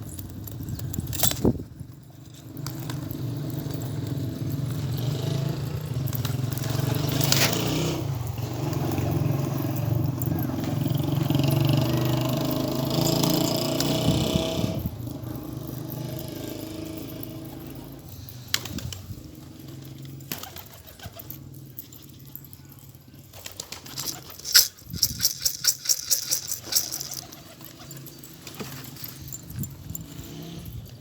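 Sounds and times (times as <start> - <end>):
sharp rattling claps: 23.7 - 27.7.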